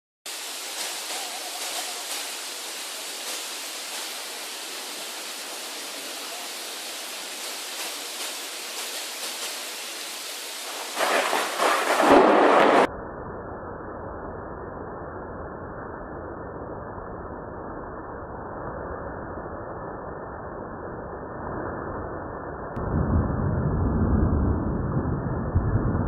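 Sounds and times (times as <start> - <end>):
rain hiss: 0.3 - 12.9
crackling thunderclap: 10.5 - 12.9, 22.8 - 26.0.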